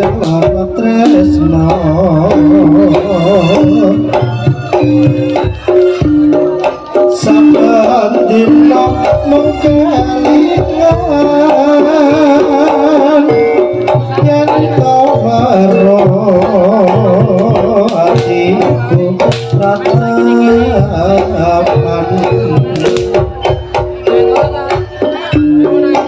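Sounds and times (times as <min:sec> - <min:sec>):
wavering melody line: 0:00.0 - 0:26.0.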